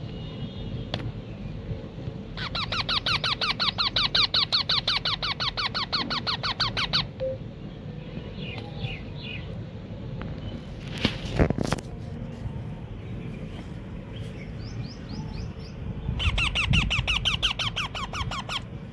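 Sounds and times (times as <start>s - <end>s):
parakeet squeaky begging calls: 2.4s - 7.2s, 16.1s - 18.7s.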